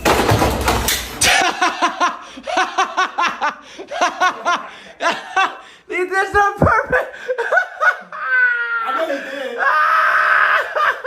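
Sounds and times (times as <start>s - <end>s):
people laughing: 1.2s - 5.8s, 6.8s - 11.0s.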